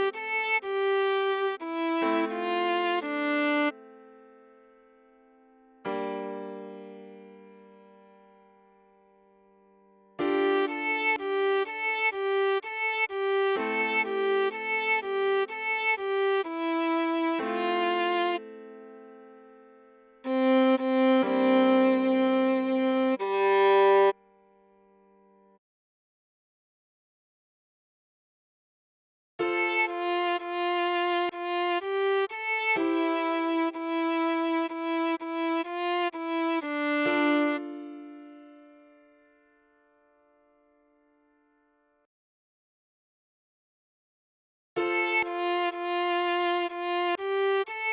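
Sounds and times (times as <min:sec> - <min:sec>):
viola playing bowed notes: 0:00.0 - 0:03.8, 0:10.2 - 0:18.5, 0:20.3 - 0:24.2, 0:29.5 - 0:38.6, 0:44.8 - 0:47.9.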